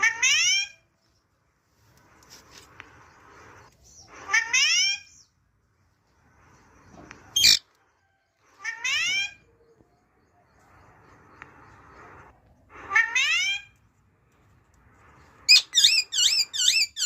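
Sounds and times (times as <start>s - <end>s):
parrot screeching: 4.1s - 5.1s, 7.4s - 7.6s, 8.6s - 9.4s, 12.7s - 13.7s, 15.5s - 17.0s
parrot calling: 4.1s - 5.2s, 7.4s - 7.6s, 8.6s - 9.5s, 12.7s - 13.8s, 15.5s - 17.0s.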